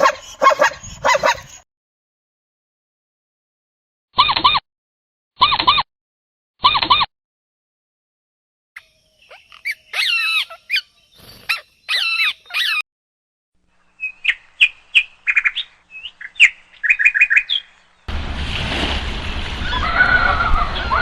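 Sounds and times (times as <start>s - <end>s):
birds warbling calls: 8.8s - 12.8s, 13.9s - 18.1s.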